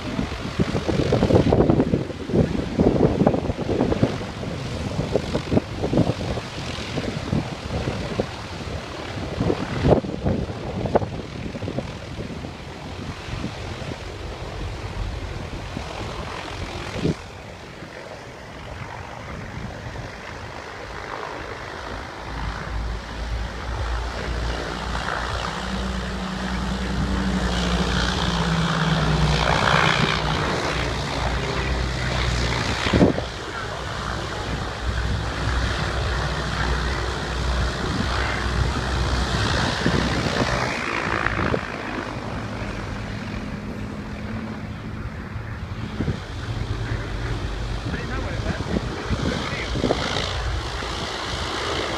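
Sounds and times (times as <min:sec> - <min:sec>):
propeller aircraft passing: 0:00.0 - 0:51.9
wind on microphone: 0:00.0 - 0:51.9.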